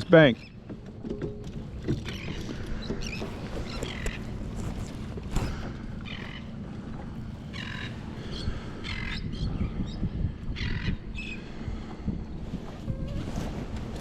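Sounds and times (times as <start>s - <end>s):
wind and water rumble: 0.0s - 14.0s
bird squawking: 2.1s - 6.6s, 7.4s - 9.3s.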